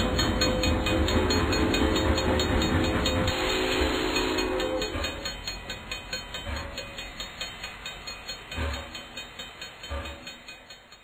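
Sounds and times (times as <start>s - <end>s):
train wheels clacking: 0.0s - 11.0s
train horn: 0.6s - 5.3s.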